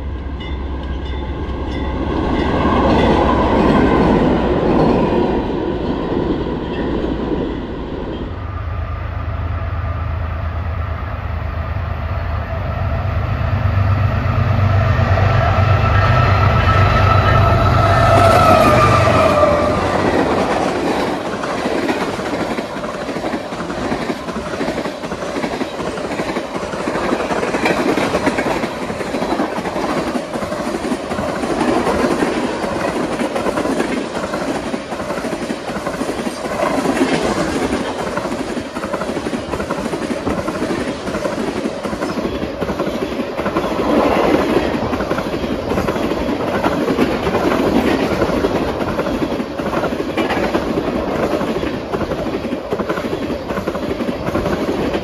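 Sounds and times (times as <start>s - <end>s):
train wheels clattering over rail joints: 18.1s - 55.0s.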